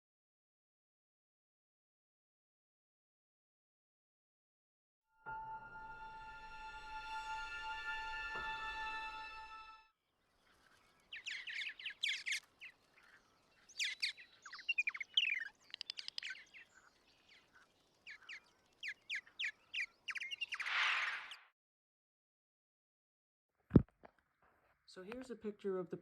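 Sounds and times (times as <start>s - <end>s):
birds chirping: 10.2s - 21.5s.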